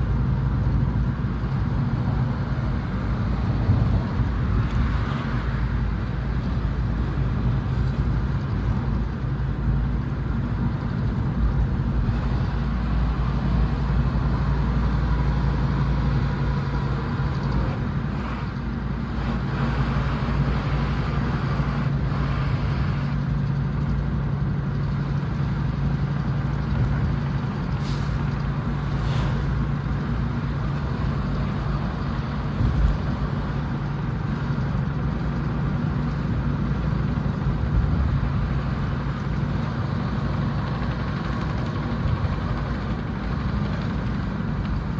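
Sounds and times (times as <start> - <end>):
diesel truck engine rumbling: 0.0 - 44.9
brief hisses: 27.8 - 28.3, 29.0 - 29.4.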